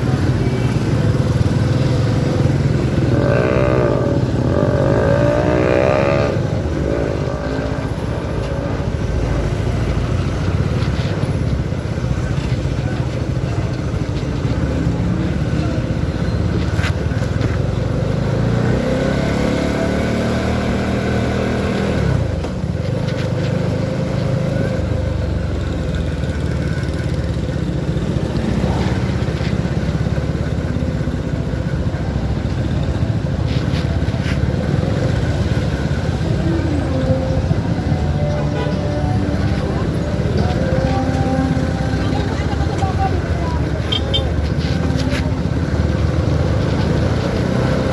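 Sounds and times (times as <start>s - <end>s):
motorcycle engine running: 0.0s - 47.9s
wind and road noise: 0.0s - 47.9s.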